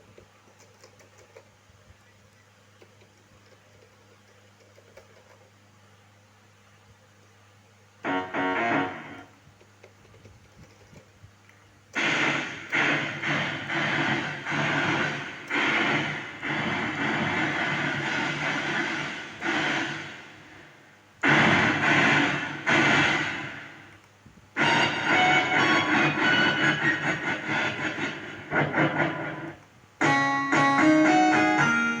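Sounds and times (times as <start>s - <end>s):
loud irregular pulses: 8.0s - 9.3s, 11.9s - 24.0s, 24.6s - 32.0s
low sound with faint ticks: 9.5s - 11.7s.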